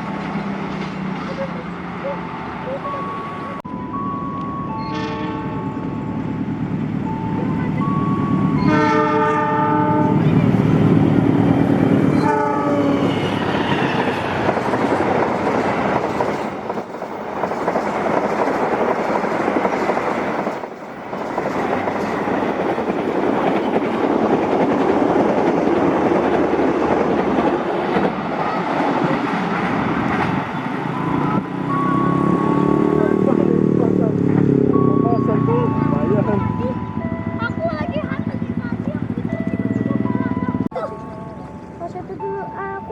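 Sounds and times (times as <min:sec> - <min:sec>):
train coaches rushing past: 0:00.0 - 0:42.9
multi-tone locomotive horn blasts: 0:04.8 - 0:06.2, 0:08.2 - 0:10.7, 0:12.1 - 0:14.2.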